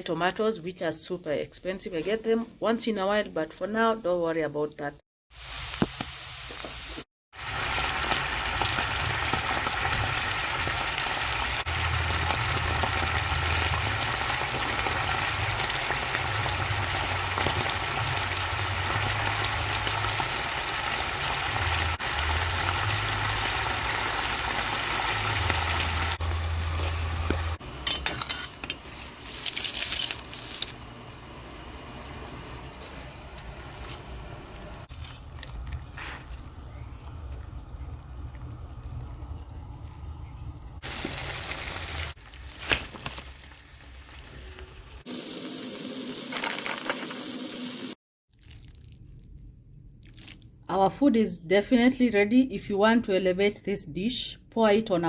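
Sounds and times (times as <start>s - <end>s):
food sizzling in oil: 5.3s - 30.8s, 40.7s - 48.0s.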